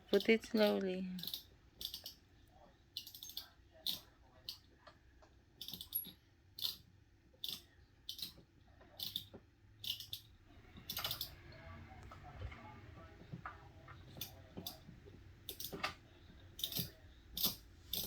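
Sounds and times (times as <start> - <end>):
plastic toy train clicks: 1.2 - 2.2, 3.0 - 4.6, 5.6 - 6.8, 7.4 - 8.4, 9.0 - 10.3, 10.9 - 11.3, 15.5 - 15.9, 16.6 - 18.0.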